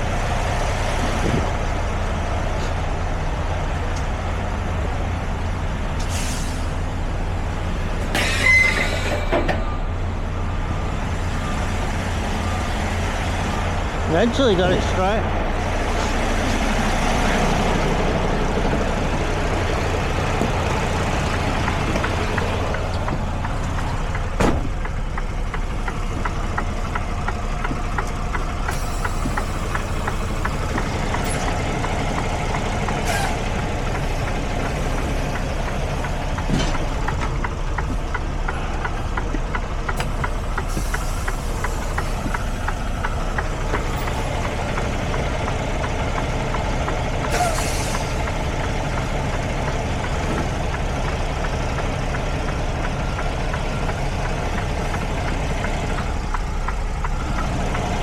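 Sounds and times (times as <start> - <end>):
diesel engine idling: 0.0 - 58.0
sharp knocks or clicks: 19.7 - 58.0.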